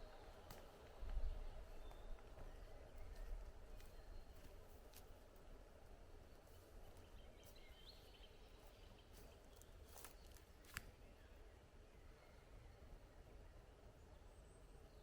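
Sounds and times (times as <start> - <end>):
faint clicks or snaps: 10.0 - 10.9.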